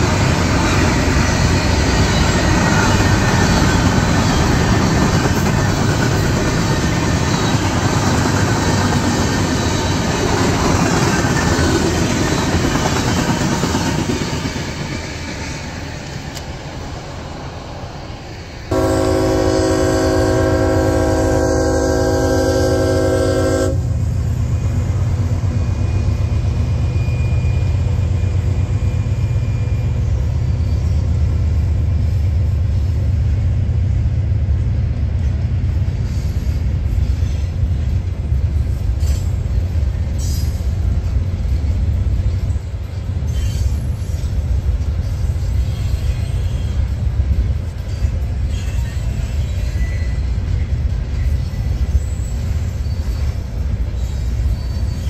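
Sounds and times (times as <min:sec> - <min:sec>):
rumble of cars rolling on rails: 0:00.0 - 0:55.0
train horn chord: 0:18.7 - 0:24.0.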